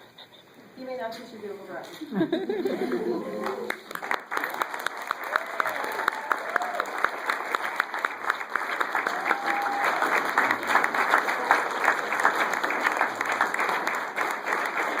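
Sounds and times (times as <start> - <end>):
crowd clapping: 2.7 - 15.0.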